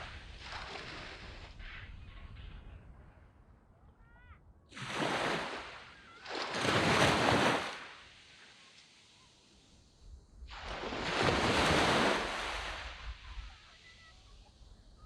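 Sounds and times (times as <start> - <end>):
waves breaking on sand beach: 0.0 - 2.4, 4.7 - 15.0.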